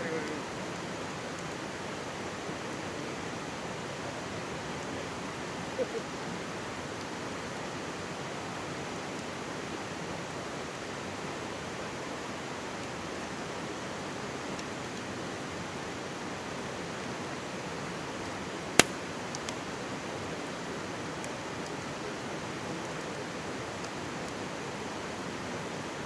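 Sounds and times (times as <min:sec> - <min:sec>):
campfire popping and crackling: 0:18.8 - 0:19.5.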